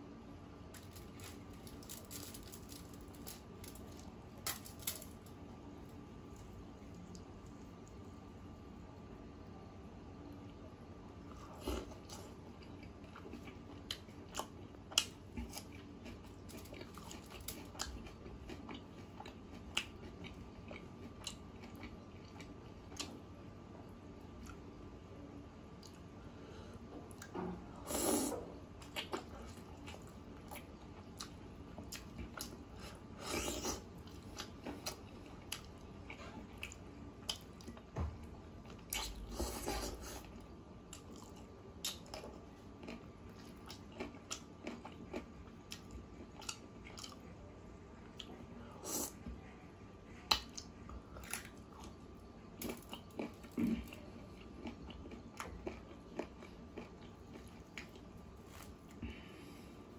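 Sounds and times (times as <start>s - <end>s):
chewing and biting food: 11.6s - 23.2s, 52.6s - 58.8s.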